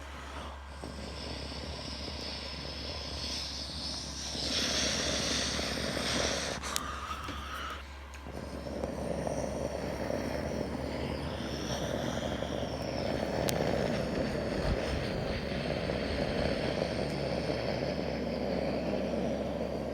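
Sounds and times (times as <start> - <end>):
faint high whine: 0.0 - 19.9
jet engines rushing: 0.0 - 19.9.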